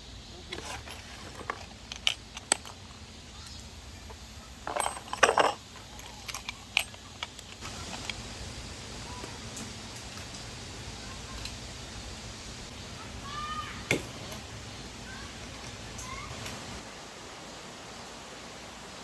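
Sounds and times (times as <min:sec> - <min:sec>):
small objects clicking and clinking: 0:00.5 - 0:08.2.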